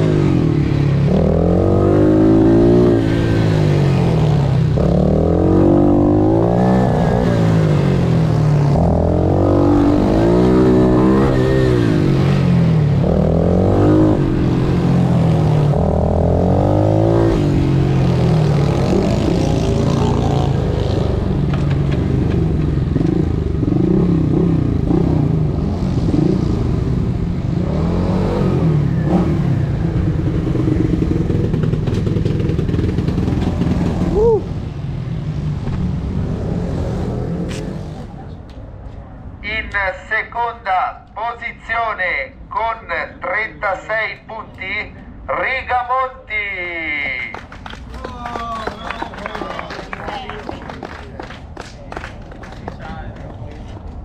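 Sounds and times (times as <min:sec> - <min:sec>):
motorbike engine revving: 0:00.0 - 0:38.2.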